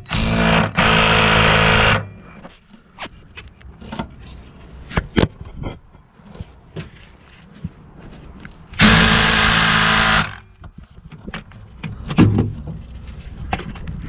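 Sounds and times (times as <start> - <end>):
impact wrench running: 0.0 - 2.0, 8.8 - 10.4.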